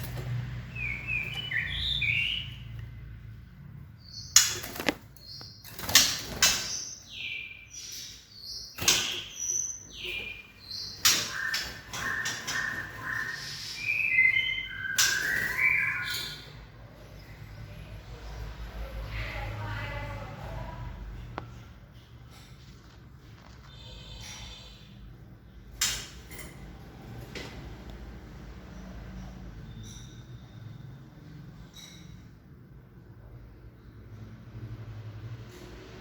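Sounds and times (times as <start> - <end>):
young birds chirping and whistling: 0.7 - 2.8, 4.0 - 17.4.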